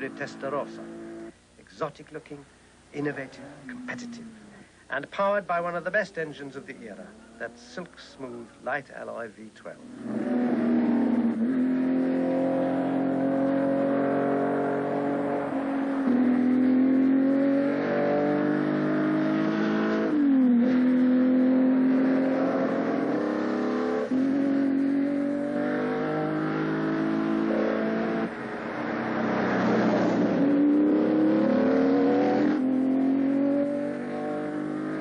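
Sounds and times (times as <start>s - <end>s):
sports car engine accelerating: 0.0s - 1.4s, 3.2s - 4.6s, 9.8s - 35.0s.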